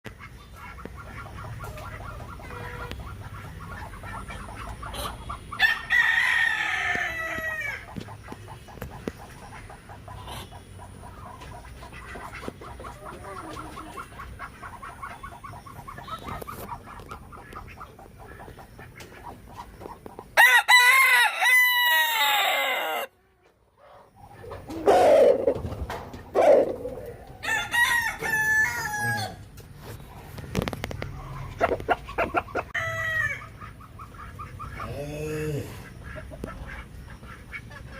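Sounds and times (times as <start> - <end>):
chickens clucking: 0.1 - 37.9
roosters crowing: 4.5 - 8.0, 20.4 - 23.2, 24.6 - 29.6, 31.0 - 33.8.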